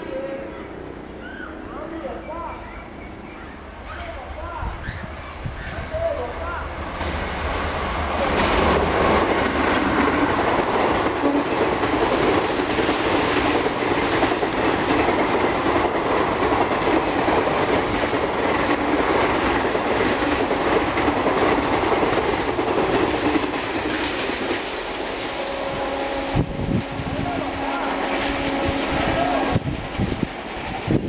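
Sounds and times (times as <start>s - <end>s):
train rushing past: 0.0s - 31.0s
wheels clattering over rail joints: 8.0s - 25.4s.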